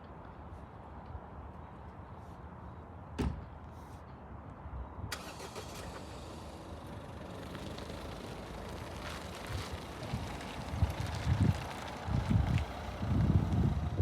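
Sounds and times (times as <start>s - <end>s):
low vehicle rumble: 6.3s - 14.0s.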